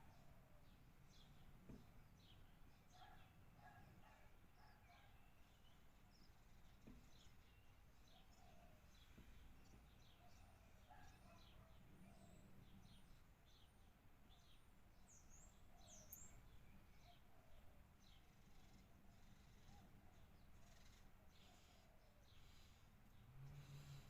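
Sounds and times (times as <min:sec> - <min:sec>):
birds chirping: 0:01.1 - 0:18.8.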